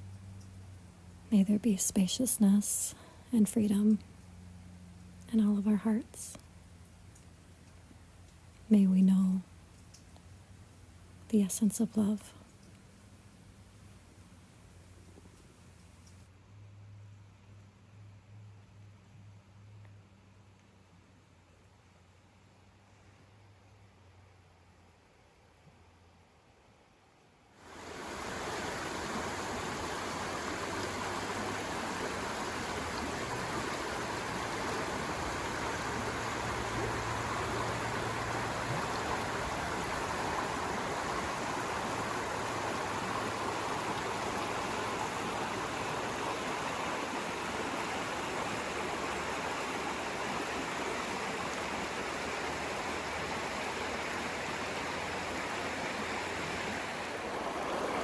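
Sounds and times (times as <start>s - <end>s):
stream flowing: 27.6s - 58.0s.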